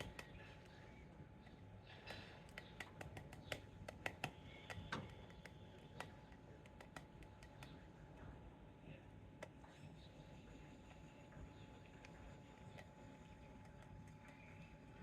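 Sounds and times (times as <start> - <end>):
woodpecker tapping: 0.0 - 0.8, 1.4 - 7.9.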